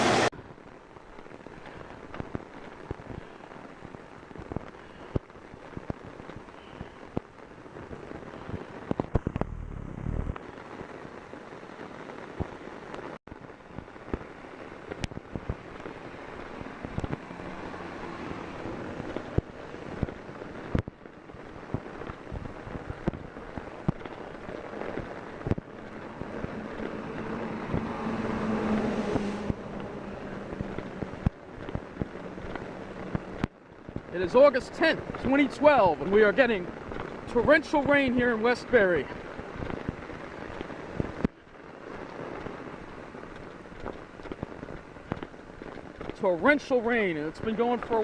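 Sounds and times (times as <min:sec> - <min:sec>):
rain drops hitting an umbrella: 0:00.0 - 0:48.0
passing vehicle hum: 0:09.3 - 0:10.4, 0:25.7 - 0:33.2.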